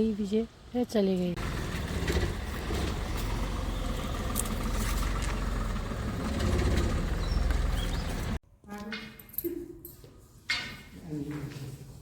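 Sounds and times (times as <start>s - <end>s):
engine rumbling with rough hiss: 0.0s - 8.4s.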